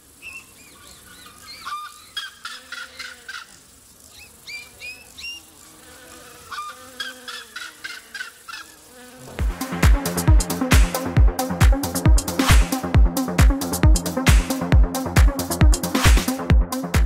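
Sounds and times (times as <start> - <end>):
birds calling: 0.2 - 3.6.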